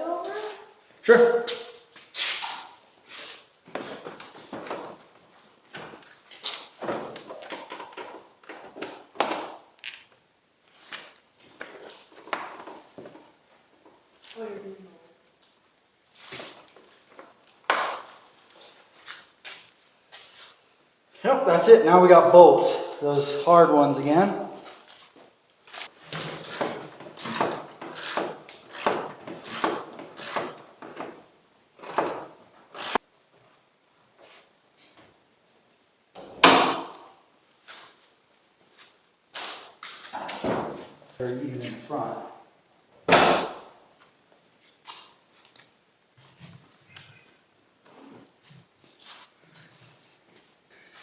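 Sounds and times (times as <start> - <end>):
hand ratchet rasping: 26.3 - 30.7.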